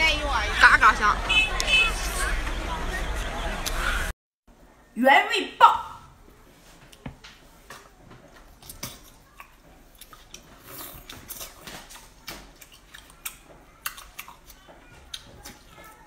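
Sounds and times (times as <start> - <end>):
wet chewing smacks and clicks: 8.6 - 16.0.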